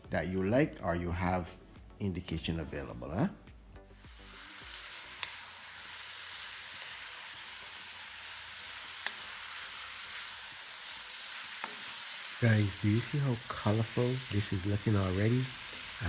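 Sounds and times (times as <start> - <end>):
food sizzling in hot oil: 3.9 - 16.0
utensil clicking against wok: 5.1 - 5.5, 6.7 - 7.0, 8.9 - 9.3, 11.5 - 12.1.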